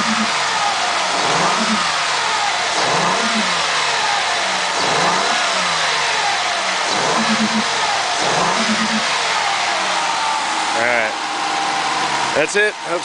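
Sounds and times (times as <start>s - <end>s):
rising and falling doot tone: 0.0s - 9.8s
car engine running: 0.0s - 13.0s.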